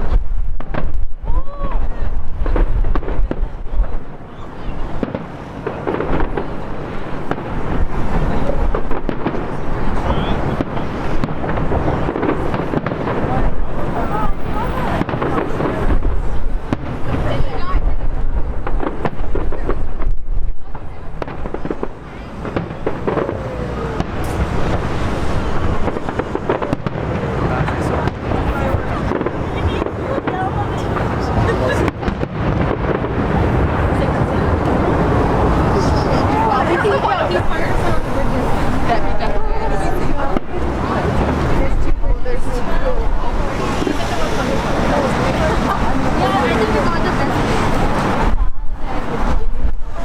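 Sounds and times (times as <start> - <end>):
distant fireworks bangs and crackles: 0.0 - 50.0
low rumble: 32.1 - 46.2.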